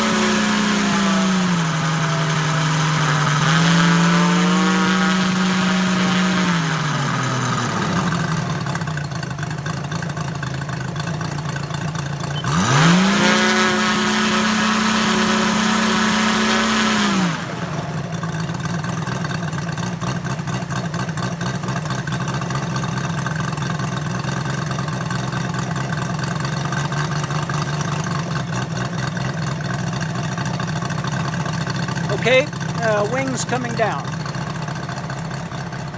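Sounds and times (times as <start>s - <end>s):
radial engine running and revving: 0.0s - 9.0s, 12.2s - 19.4s.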